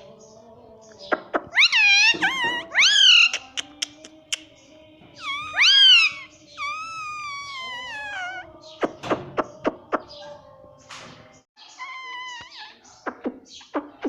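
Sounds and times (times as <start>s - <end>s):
parrot screeching: 1.5s - 3.5s, 5.2s - 8.5s, 11.7s - 12.8s.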